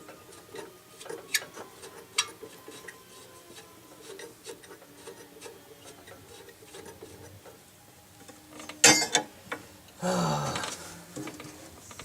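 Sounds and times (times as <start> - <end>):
tools scraping and clicking: 0.0 - 7.6.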